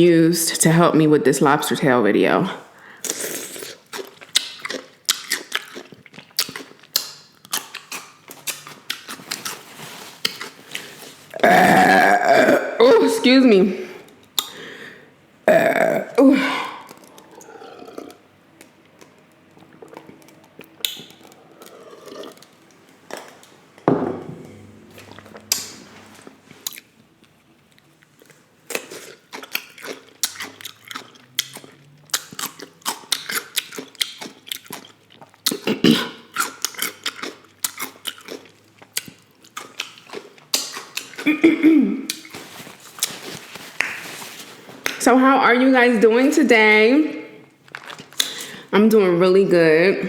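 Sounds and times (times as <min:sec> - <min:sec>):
person chewing with wet smacks: 0:03.1 - 0:11.3, 0:14.1 - 0:14.6, 0:16.8 - 0:23.6, 0:25.0 - 0:45.0.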